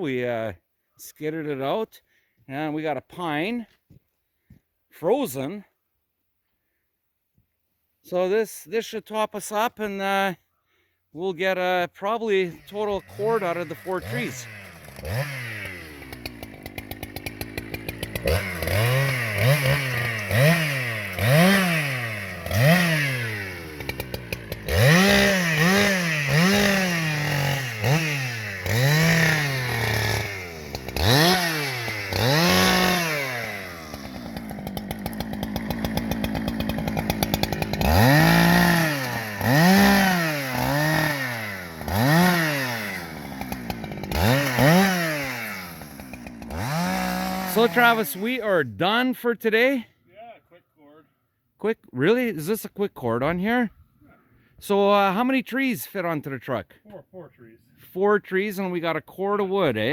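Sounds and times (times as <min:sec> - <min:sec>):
chainsaw cutting log: 0:12.3 - 0:48.7.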